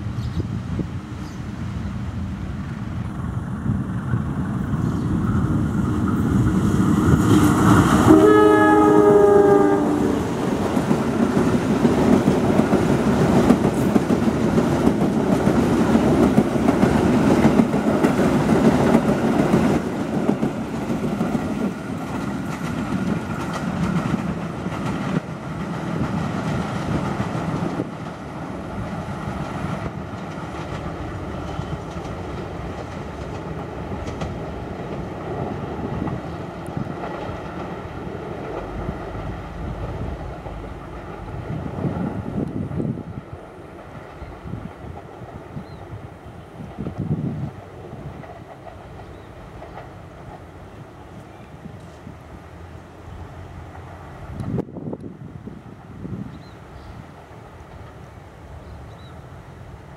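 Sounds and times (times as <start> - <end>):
locomotive rumble: 0.0 - 59.9
train horn blast: 7.3 - 10.5
train wheels clattering on rails: 9.9 - 46.0, 46.6 - 52.2.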